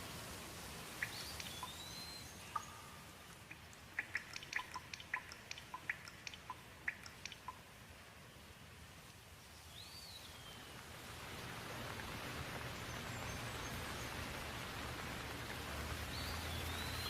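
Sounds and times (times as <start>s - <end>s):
rain hissing: 0.0s - 17.0s
bird whistle: 1.0s - 2.8s
water drops plinking: 1.0s - 7.6s.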